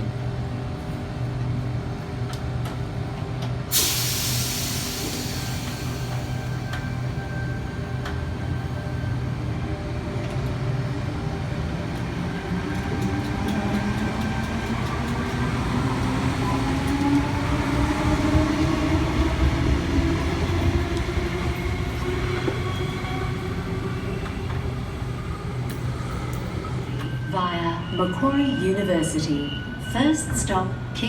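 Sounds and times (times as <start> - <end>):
wheels rumbling on rails: 5.1 - 27.2.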